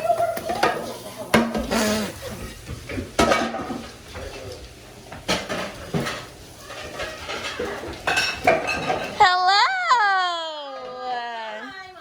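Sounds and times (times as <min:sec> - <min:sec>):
dishes clattering: 0:00.1 - 0:09.2
crockery clinking: 0:05.3 - 0:09.2.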